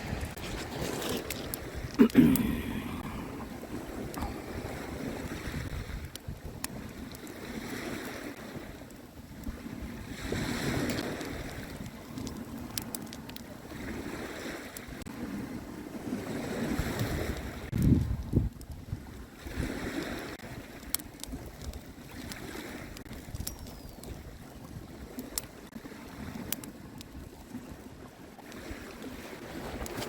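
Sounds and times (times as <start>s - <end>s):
wind rumbling on microphone: 0.0s - 2.0s, 2.7s - 30.0s
small waves washing onto beach: 0.0s - 30.0s.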